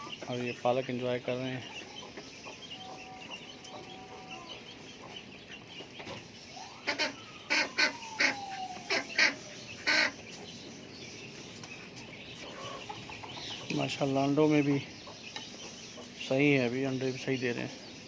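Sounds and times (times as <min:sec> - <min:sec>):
chickens clucking: 0:00.0 - 0:18.0
short loud chicken calls: 0:06.5 - 0:10.3.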